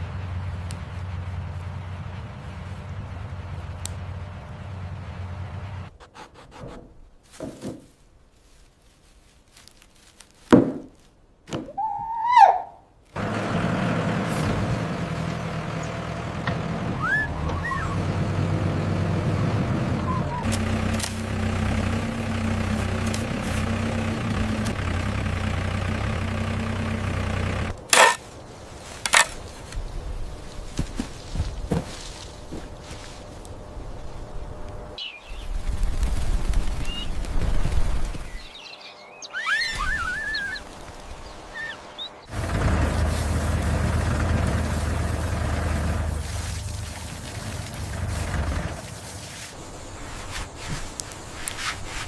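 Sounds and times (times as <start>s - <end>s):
vehicle engine idling: 0.0s - 6.0s, 13.2s - 28.1s, 42.1s - 50.3s
knocks: 10.5s - 10.9s
short rising squeal: 17.0s - 18.0s, 39.3s - 40.6s.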